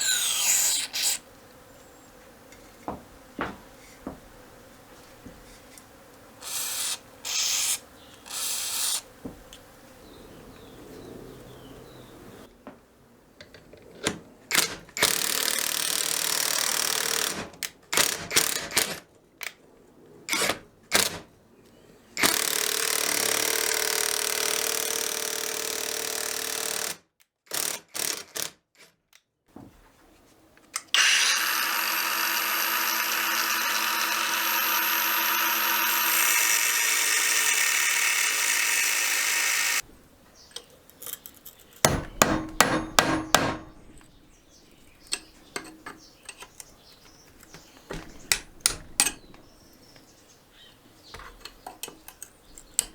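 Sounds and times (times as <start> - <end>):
handheld power tool running: 0.0 - 1.3, 22.2 - 27.0, 30.9 - 39.9
handling clicks and knocks: 39.9 - 50.1.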